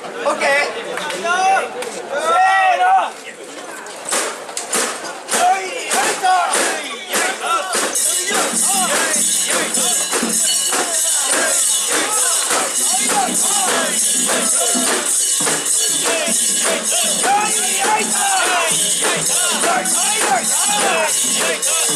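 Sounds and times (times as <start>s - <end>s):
people chanting together: 5.3s - 21.9s
sharp metallic jingle: 7.9s - 21.9s.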